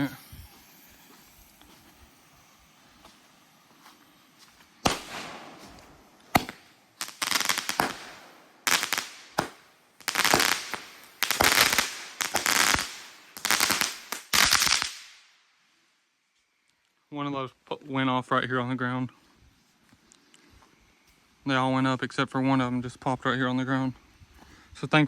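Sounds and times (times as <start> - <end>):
firework bangs and crackling bursts: 0.0 - 15.4.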